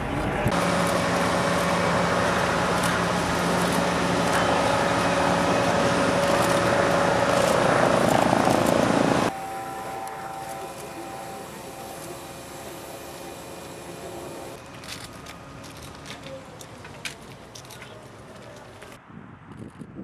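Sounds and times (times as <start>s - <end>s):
boat engine humming: 0.0s - 19.0s
faint steady tone: 9.2s - 14.6s.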